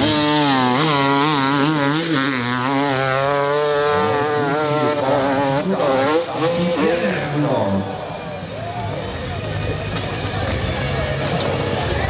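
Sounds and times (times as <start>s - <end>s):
dirt bike engine revving hard: 0.0s - 7.8s.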